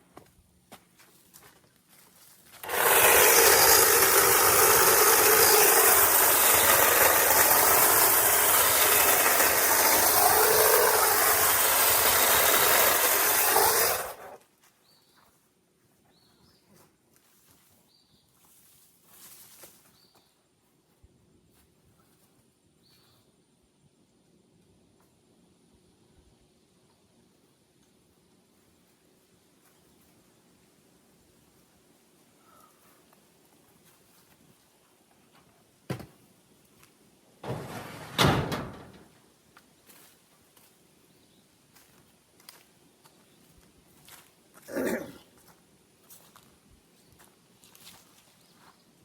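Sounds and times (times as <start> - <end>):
power saw cutting tree limb: 2.6 - 14.4, 37.4 - 39.0.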